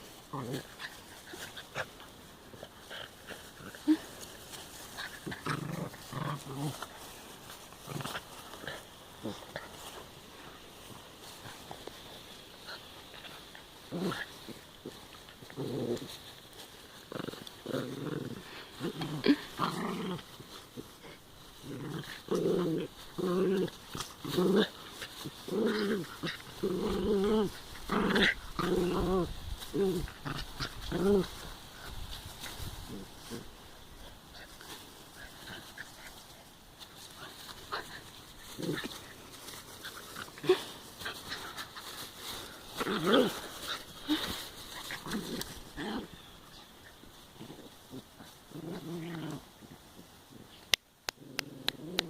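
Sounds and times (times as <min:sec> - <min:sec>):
dogs growling in play: 0:00.0 - 0:52.0.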